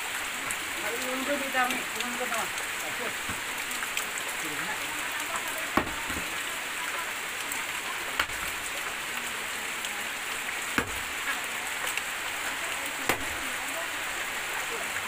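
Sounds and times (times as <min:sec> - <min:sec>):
steady rain: 0:00.0 - 0:15.0
axe chopping wood: 0:05.8 - 0:06.3, 0:10.8 - 0:11.1, 0:13.1 - 0:13.3.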